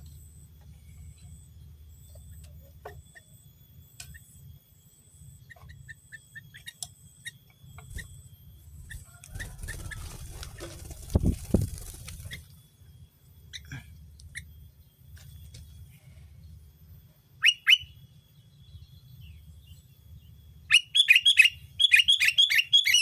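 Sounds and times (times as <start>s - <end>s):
small birds chirping: 5.5s - 12.6s, 17.4s - 23.0s.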